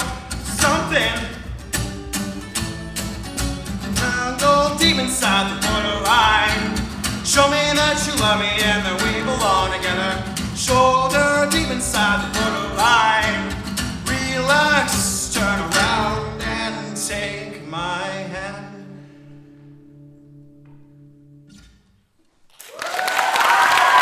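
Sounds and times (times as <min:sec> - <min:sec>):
man singing: 0:00.0 - 0:01.6, 0:03.8 - 0:19.2
acoustic guitar strumming: 0:00.0 - 0:21.9.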